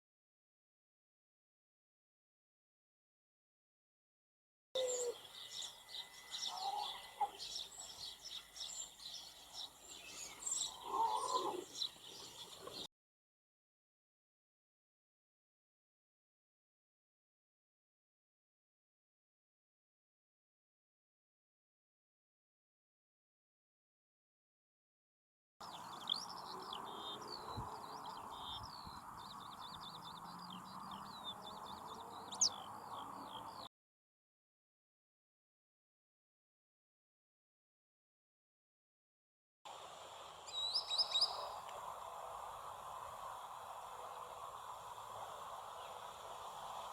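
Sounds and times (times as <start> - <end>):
birds chirping: 4.8 - 12.9, 25.6 - 33.7, 39.8 - 46.9
lower loud bird call: 4.8 - 12.9
songbird singing: 4.8 - 12.9, 25.6 - 33.7, 39.7 - 46.9
steady background hiss: 39.7 - 46.9.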